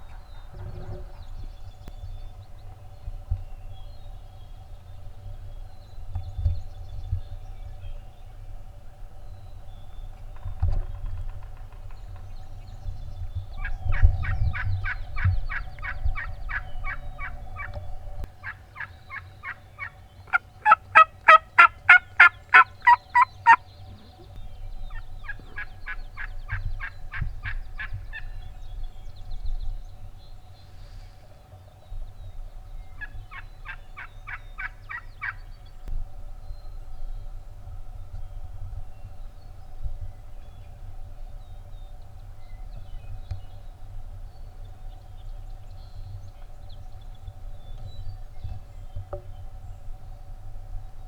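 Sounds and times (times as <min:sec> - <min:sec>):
wild turkey yelping: 0:13.6 - 0:24.1, 0:24.9 - 0:28.4, 0:33.0 - 0:35.4.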